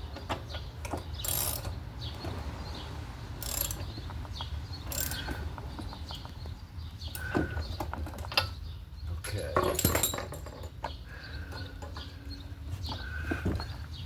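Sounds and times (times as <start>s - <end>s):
ratchet wrench clicking: 1.2s - 1.7s, 3.4s - 4.0s, 4.9s - 5.4s.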